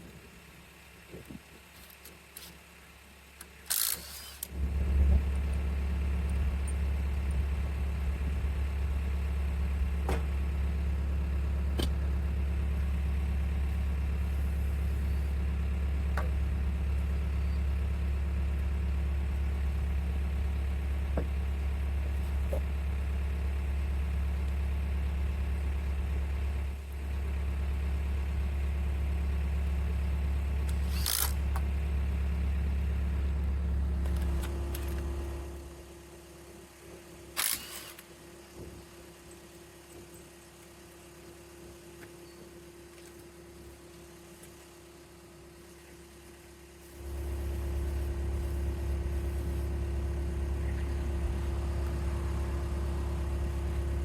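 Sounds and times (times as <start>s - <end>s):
tractor engine starting and idling: 3.2s - 38.6s, 46.9s - 54.0s.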